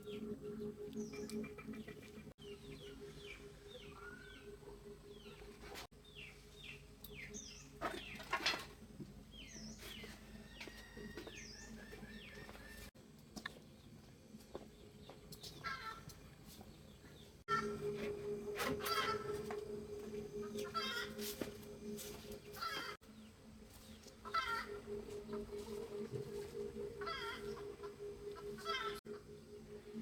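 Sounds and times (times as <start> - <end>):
birds chirping: 0.0 - 8.6, 14.7 - 30.0.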